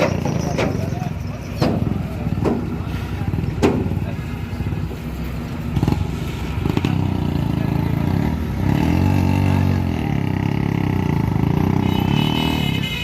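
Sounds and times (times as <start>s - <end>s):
truck engine revving: 0.0s - 12.8s
sharp knocks: 1.6s - 2.7s, 3.6s - 4.0s.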